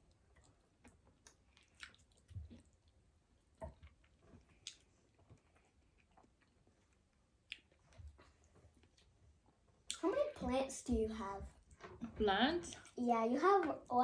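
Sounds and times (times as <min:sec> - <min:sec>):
close-up chewing: 0:00.0 - 0:10.0
wet mouth clicks: 0:04.6 - 0:04.9.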